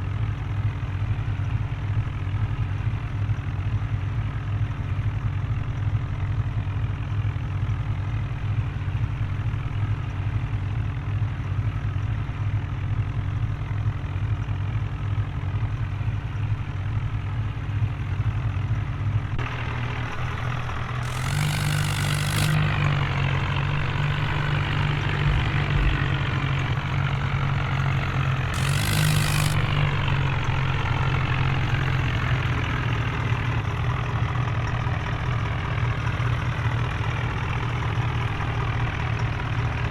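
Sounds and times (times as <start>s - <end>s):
heavy vehicle engine humming: 13.0s - 39.9s.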